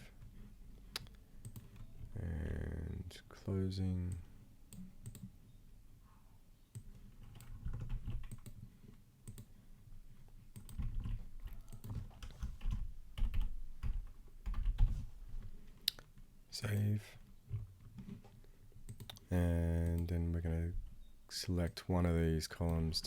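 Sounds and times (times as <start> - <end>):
keyboard typing: 1.4 - 2.1, 4.1 - 5.3, 6.7 - 8.6, 9.2 - 9.5, 10.5 - 15.0, 18.9 - 20.1.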